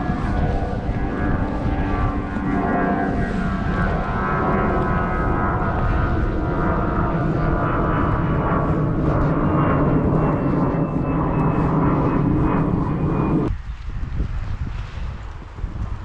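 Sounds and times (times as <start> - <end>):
motor drone: 0.0 - 13.6.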